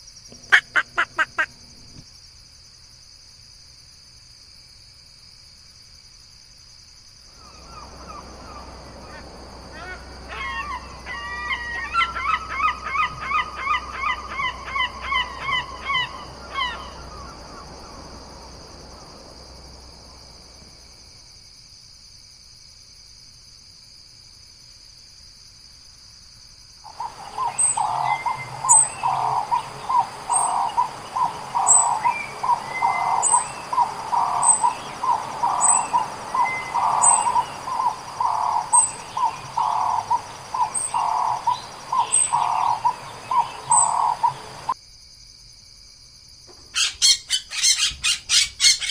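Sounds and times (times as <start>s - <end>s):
bird loud repeated calls: 0.3s - 1.6s, 7.4s - 18.8s, 26.9s - 44.8s, 46.7s - 48.9s
high-pitched insect drone: 7.2s - 21.7s, 26.9s - 45.2s.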